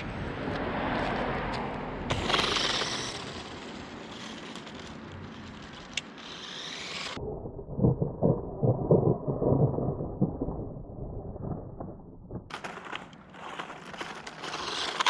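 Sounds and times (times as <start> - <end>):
toy truck motor and tyres: 0.0 - 7.2, 12.5 - 15.0.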